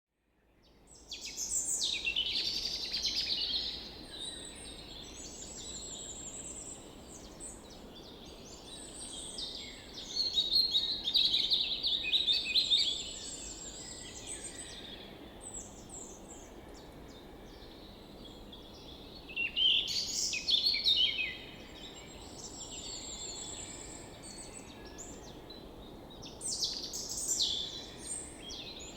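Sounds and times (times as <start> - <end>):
songbirds singing and chirping: 0.8 - 28.9.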